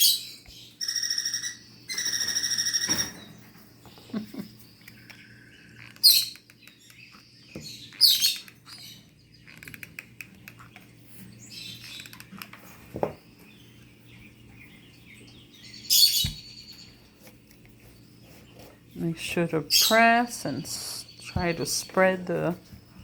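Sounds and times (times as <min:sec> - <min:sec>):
lovebirds shrill calls: 0:00.0 - 0:03.7, 0:04.3 - 0:09.6, 0:13.4 - 0:17.0
soft bird chirps: 0:00.0 - 0:23.0.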